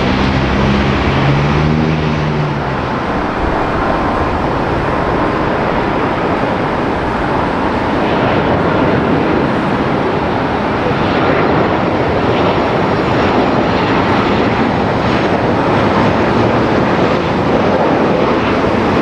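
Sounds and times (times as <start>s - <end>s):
low hum: 0.0s - 11.2s
jet engine rushing: 0.0s - 19.0s.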